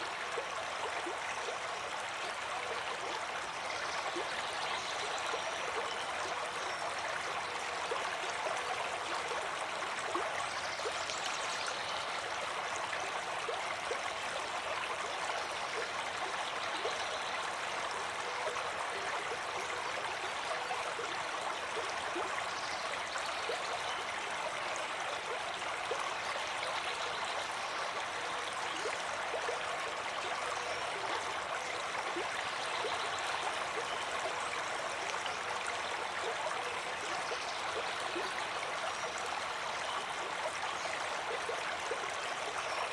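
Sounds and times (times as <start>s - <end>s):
stream water rushing and splashing: 0.0s - 42.9s.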